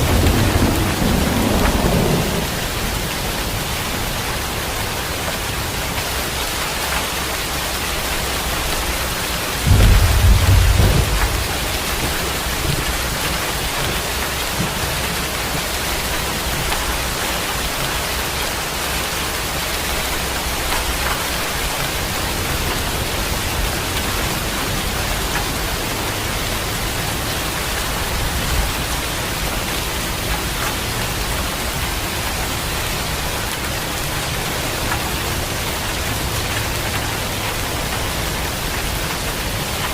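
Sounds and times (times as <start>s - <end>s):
distant thunder rumble: 0.0s - 4.2s, 8.6s - 17.2s
thunder crack and rumble: 0.0s - 6.1s, 8.5s - 18.3s
heavy rain hissing: 0.0s - 39.9s.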